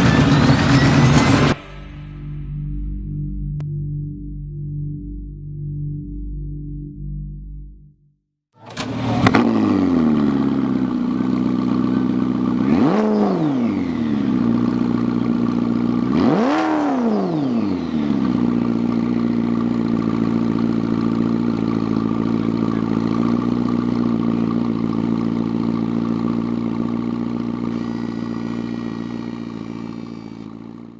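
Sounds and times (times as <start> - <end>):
car engine starting: 8.6 - 30.9
car engine idling: 8.8 - 16.2, 17.5 - 30.9
car engine revving: 8.8 - 30.9.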